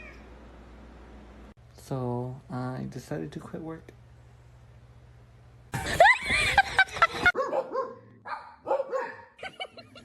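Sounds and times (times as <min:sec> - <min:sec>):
dog barking and yipping: 0:07.3 - 0:09.4.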